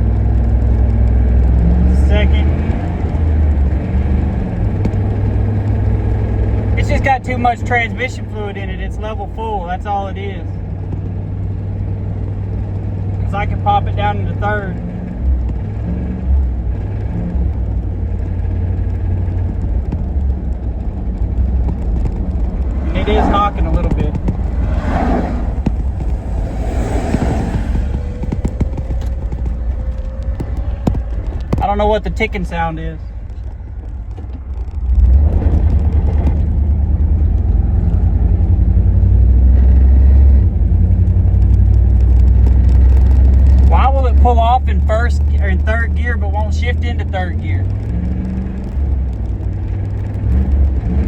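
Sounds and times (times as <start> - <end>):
truck engine rumbling: 0.0 - 51.0
engine knocking: 25.6 - 39.5.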